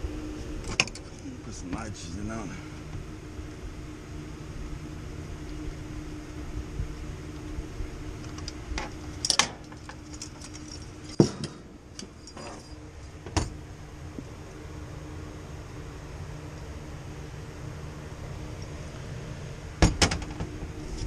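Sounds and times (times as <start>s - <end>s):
low mechanical hum: 0.0s - 21.0s
metal tools clinking: 12.0s - 12.8s.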